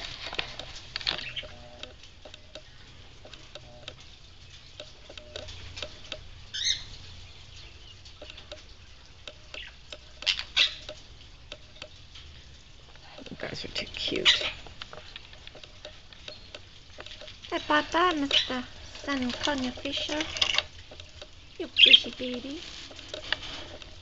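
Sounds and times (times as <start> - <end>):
small clicks and taps: 0.0 - 6.3, 8.0 - 12.3, 12.9 - 24.0
birds splashing in water: 0.0 - 24.0
high bird chirps: 1.2 - 1.7, 6.5 - 7.0, 16.2 - 16.6.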